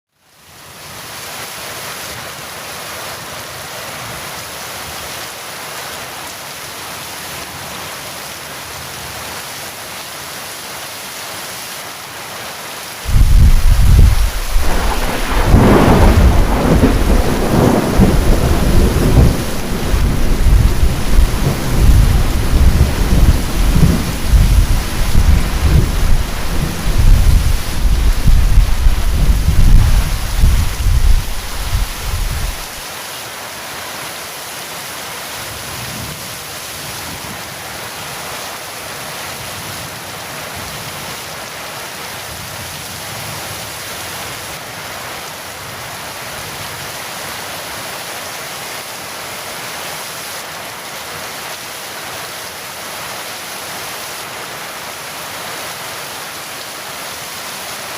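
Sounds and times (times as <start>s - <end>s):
heavy rain falling: 0.3s - 57.9s
loud thunderclap: 13.1s - 32.8s
rumbling thunder: 13.1s - 32.8s.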